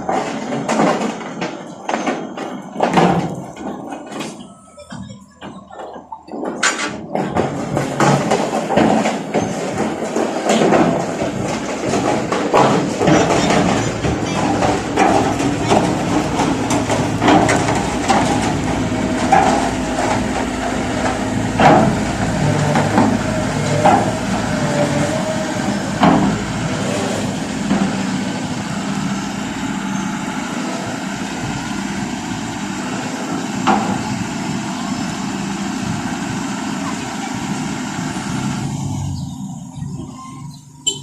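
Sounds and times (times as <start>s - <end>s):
heavy truck engine running: 0.0s - 41.0s
metallic knocks and clanks: 4.9s - 26.8s.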